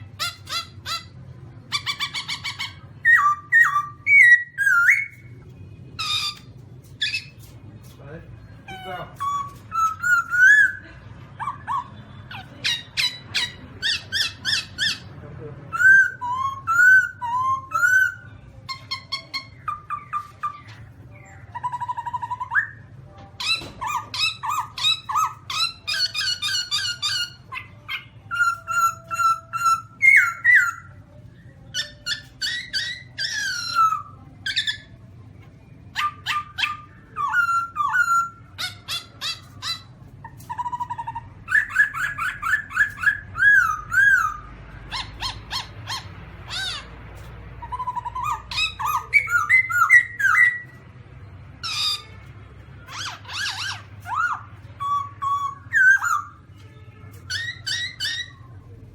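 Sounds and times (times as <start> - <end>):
chattering bird notes: 0.0 - 58.9
bird calling slurred whistles: 53.0 - 56.4.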